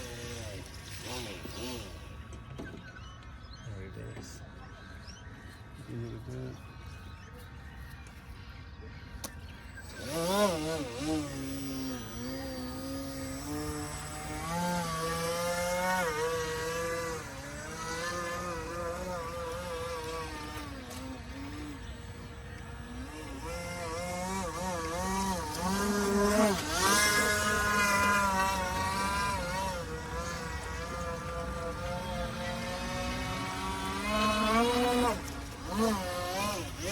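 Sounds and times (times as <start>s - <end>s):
electric motor of model boat: 0.0s - 4.3s, 7.6s - 36.9s.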